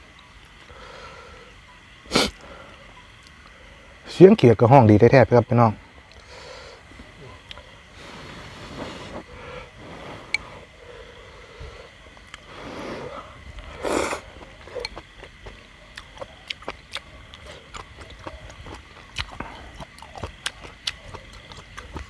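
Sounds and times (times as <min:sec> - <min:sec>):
frogs calling: 0:00.0 - 0:08.2, 0:09.2 - 0:22.0
wet chewing mouth sounds: 0:13.5 - 0:22.0.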